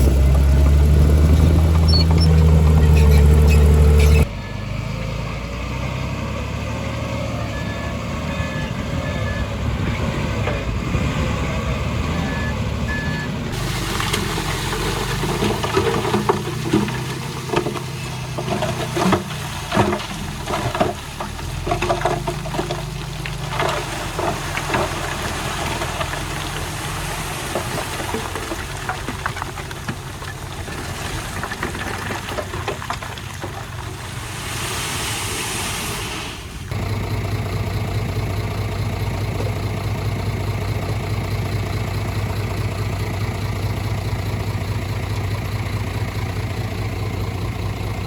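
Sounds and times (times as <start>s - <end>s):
heavy machinery diesel engines: 0.0s - 48.0s
reversing alarm beeps: 7.4s - 9.6s, 12.2s - 13.3s
soil and stone knocking: 13.6s - 35.1s.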